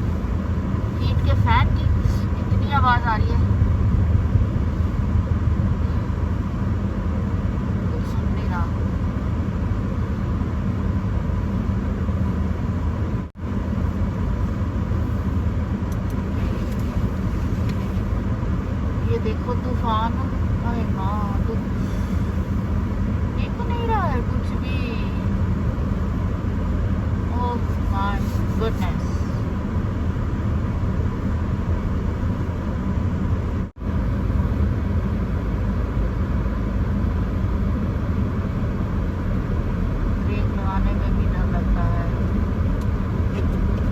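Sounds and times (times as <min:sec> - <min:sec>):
heater fan rushing: 0:00.0 - 0:43.9
road and engine rumble: 0:00.0 - 0:43.9
wind: 0:00.0 - 0:43.9.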